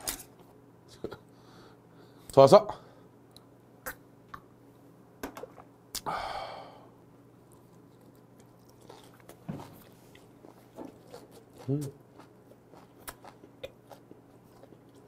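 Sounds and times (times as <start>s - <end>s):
breathy exhale: 6.1s - 6.9s
soft chewing: 7.4s - 15.0s.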